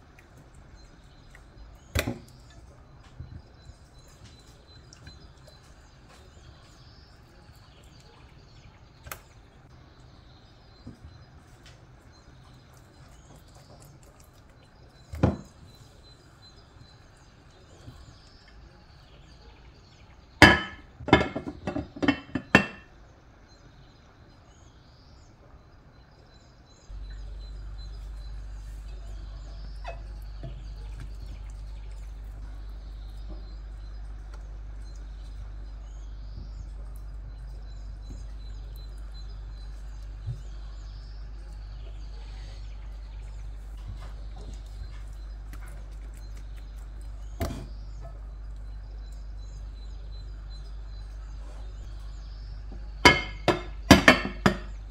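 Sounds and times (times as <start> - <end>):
faint bird chirps: 0.0 - 54.9
steady low hum: 0.0 - 54.9.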